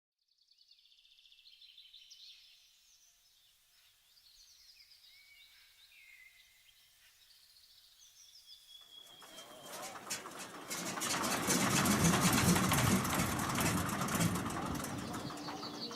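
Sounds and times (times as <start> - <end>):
small birds chirping: 0.2 - 10.8, 11.4 - 15.9.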